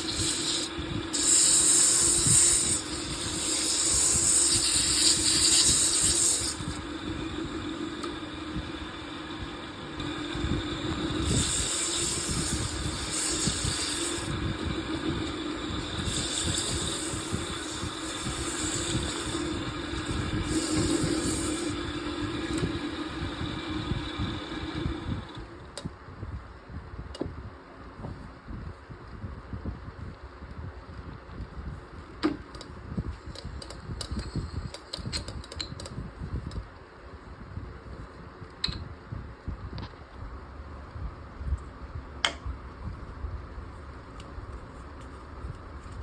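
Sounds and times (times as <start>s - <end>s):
wood lathe humming: 0.0s - 25.4s.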